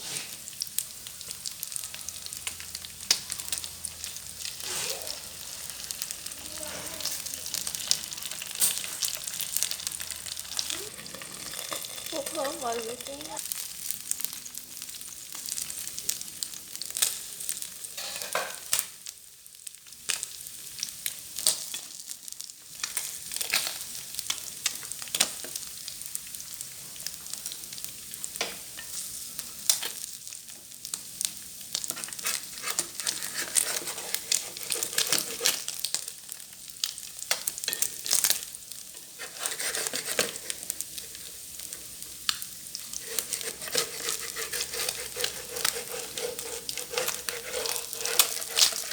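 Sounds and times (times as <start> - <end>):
fish frying in hot oil: 0.0 - 48.9
sharp pops and crackles of oil: 22.8 - 25.7, 29.6 - 48.9.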